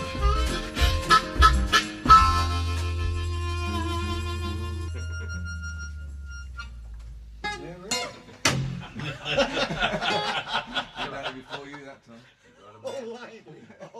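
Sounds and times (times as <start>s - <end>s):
harmonica: 0.0s - 7.6s
low bass note: 3.3s - 7.6s
people chuckling: 4.6s - 5.8s, 8.7s - 12.0s, 13.5s - 13.9s.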